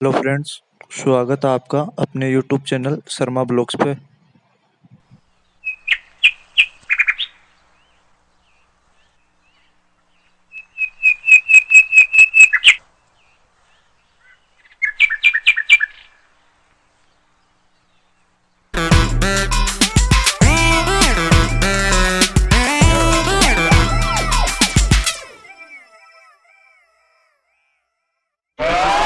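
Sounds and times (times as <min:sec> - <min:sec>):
bird calling high notes: 0:18.8 - 0:27.9.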